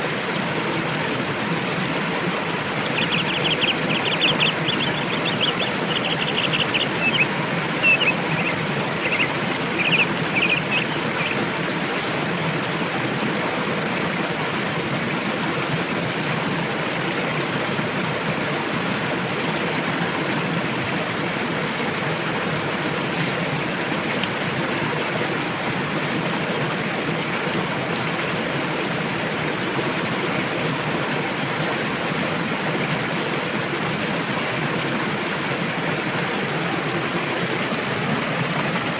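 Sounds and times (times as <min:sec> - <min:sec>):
river rushing over rocks: 0:00.3 - 0:18.3
small bird chirping: 0:02.8 - 0:11.4.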